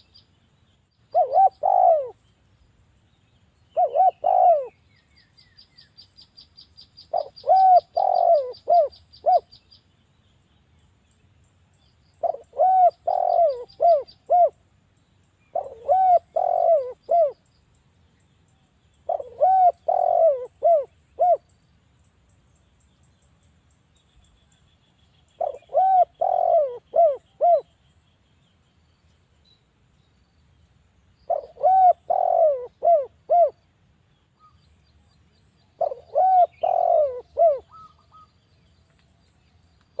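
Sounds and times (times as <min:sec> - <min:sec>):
dove cooing: 0:01.1 - 0:02.2, 0:03.7 - 0:04.8, 0:07.1 - 0:09.5, 0:12.2 - 0:14.6, 0:15.5 - 0:17.4, 0:19.0 - 0:21.4, 0:25.4 - 0:27.7, 0:31.3 - 0:33.6, 0:35.8 - 0:38.3.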